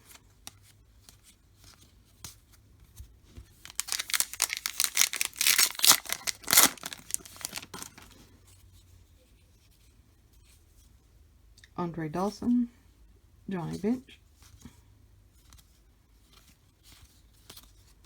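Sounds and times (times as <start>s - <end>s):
wrapper tearing and crinkling: 3.6s - 8.2s.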